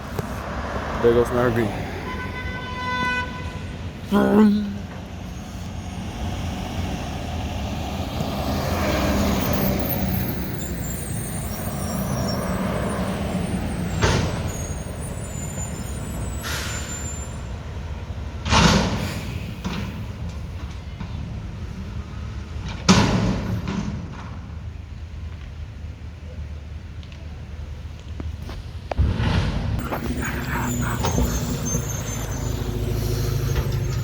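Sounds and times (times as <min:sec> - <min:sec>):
air brake hisses: 0:15.5 - 0:17.5, 0:18.9 - 0:20.0
garbage truck diesel engine running: 0:29.8 - 0:34.0.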